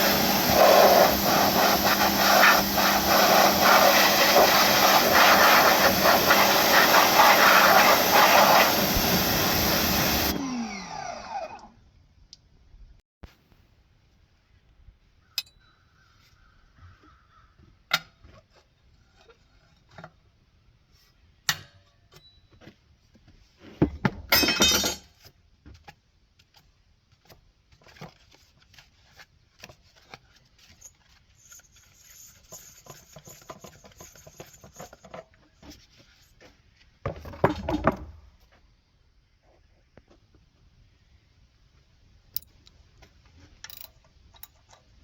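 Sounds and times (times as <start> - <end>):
metal tools clinking: 24.3 - 25.1, 43.6 - 44.9.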